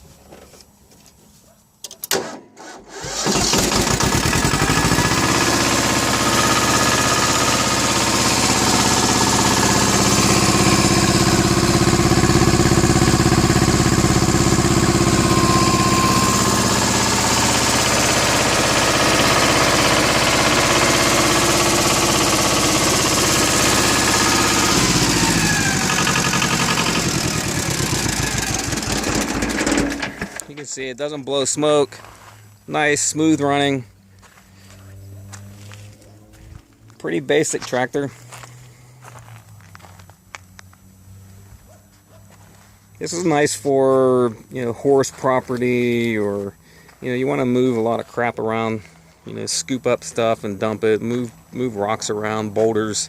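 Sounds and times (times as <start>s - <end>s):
diesel engine cranking and starting: 1.9s - 30.7s
tractor engine running: 2.2s - 30.8s.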